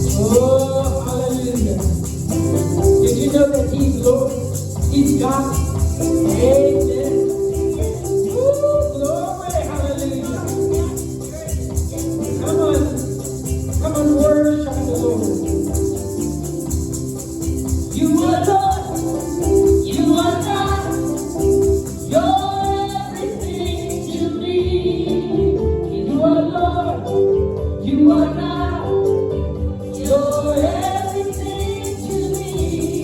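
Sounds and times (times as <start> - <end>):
gospel singing: 0.0 - 33.0
instrumental backing with rhythmic beat: 0.0 - 33.0.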